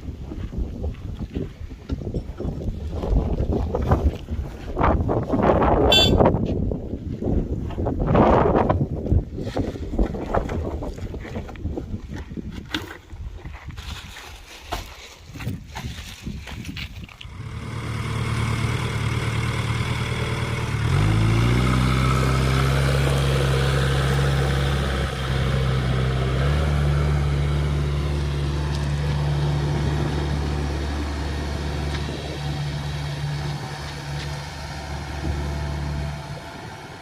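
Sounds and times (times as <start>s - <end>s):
diesel engine revving: 17.2s - 37.0s.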